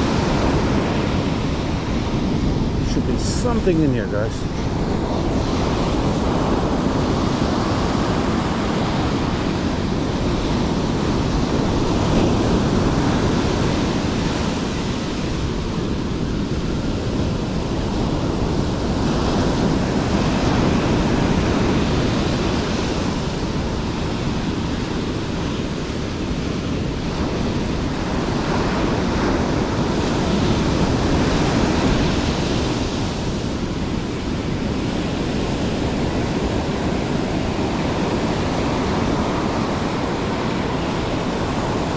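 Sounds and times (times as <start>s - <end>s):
wind noise on microphone: 0.0s - 41.9s.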